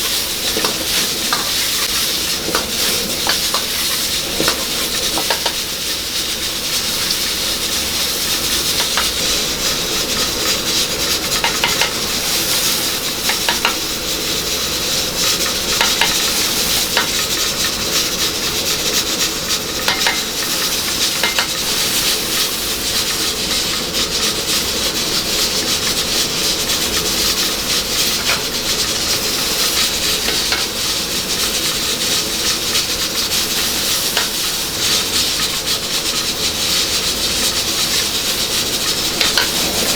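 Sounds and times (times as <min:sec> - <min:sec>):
food sizzling in hot oil: 0:00.0 - 0:39.9
metal utensils clinking on pan: 0:00.2 - 0:05.7, 0:08.4 - 0:09.6, 0:10.3 - 0:14.1, 0:15.2 - 0:17.5, 0:19.8 - 0:22.0, 0:38.9 - 0:39.9.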